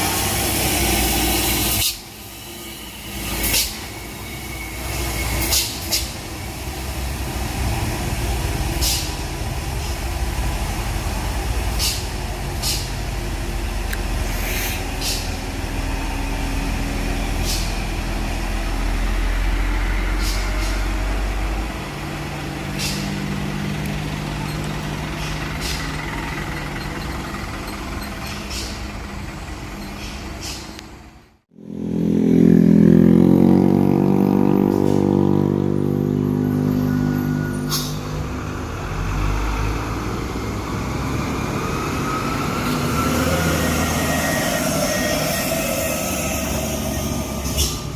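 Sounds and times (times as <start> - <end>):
air brake hisses: 0.0 - 6.3, 8.7 - 9.2, 11.7 - 13.0, 14.2 - 15.5, 17.3 - 17.9, 20.0 - 21.0, 22.7 - 23.2, 25.0 - 26.5, 28.3 - 29.0, 29.9 - 30.8, 37.6 - 38.2, 44.0 - 47.9
truck engine labouring: 0.0 - 47.9.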